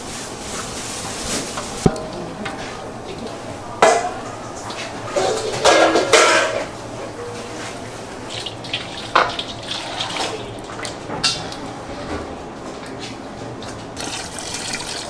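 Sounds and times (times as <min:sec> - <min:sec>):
tap water running into sink: 0:01.5 - 0:11.6, 0:14.0 - 0:15.0
dishes knocking: 0:01.6 - 0:11.7.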